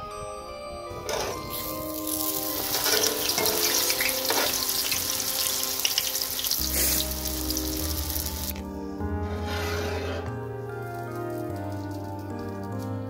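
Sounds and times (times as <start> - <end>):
background music: 0.0 - 13.0
dough sizzling in hot oil: 1.5 - 8.6.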